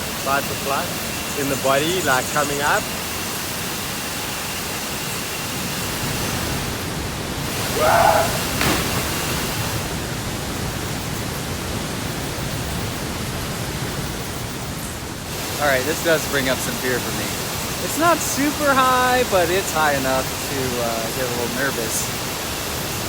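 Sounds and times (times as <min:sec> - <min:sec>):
waterfall rushing: 0:05.9 - 0:10.6, 0:15.3 - 0:23.0.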